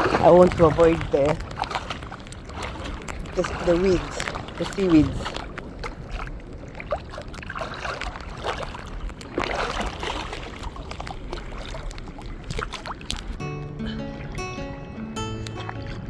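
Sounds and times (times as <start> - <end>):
feet splashing in shallow water: 0.0 - 16.0.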